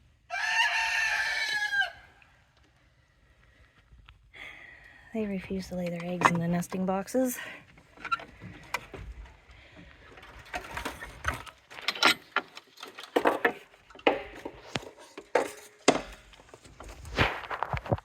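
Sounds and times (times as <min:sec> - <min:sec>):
objects knocking and clattering: 0:05.7 - 0:06.9, 0:07.8 - 0:18.0
sharp wooden knocks: 0:13.1 - 0:14.7, 0:15.3 - 0:16.3.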